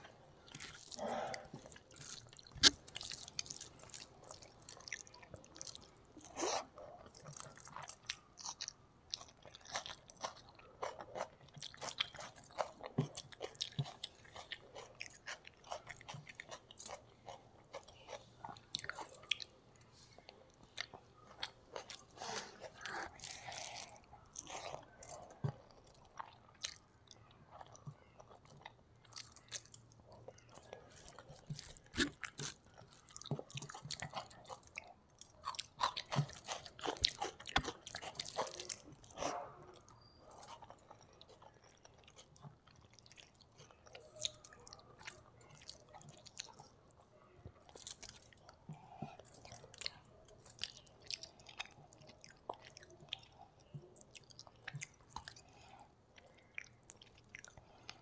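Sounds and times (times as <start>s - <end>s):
raw onion crunching: 0.0s - 19.6s, 20.7s - 46.8s
person chewing with wet clicks: 0.0s - 58.0s.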